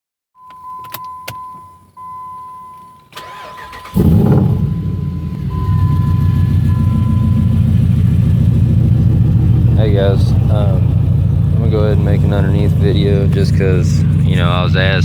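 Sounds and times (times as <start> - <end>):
car engine cranking and idling: 0.4 - 15.0
electronic chime: 0.7 - 8.2.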